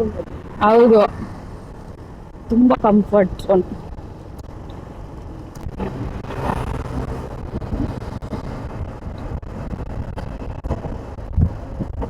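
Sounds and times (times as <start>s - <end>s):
road noise: 0.0s - 12.0s
motorcycle engine running: 5.6s - 12.0s.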